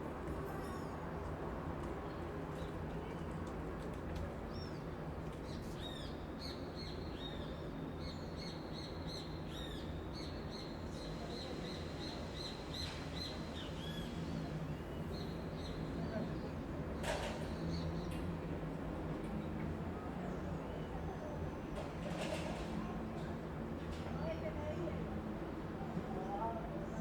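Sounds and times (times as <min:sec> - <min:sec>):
distant street traffic rumble: 0:11.0 - 0:27.0.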